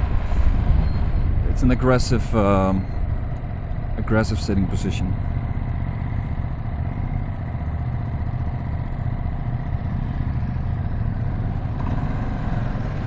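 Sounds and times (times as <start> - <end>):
motorcycle engine running: 2.8 - 13.0.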